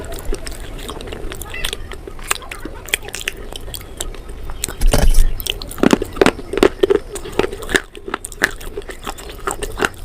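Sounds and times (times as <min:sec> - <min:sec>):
person chewing crunchy food: 0:00.0 - 0:10.0.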